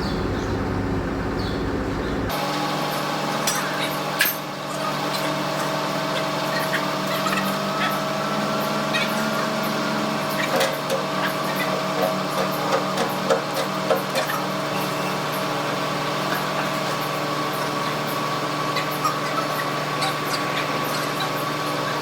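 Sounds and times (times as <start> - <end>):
machine humming: 0.0 - 22.0.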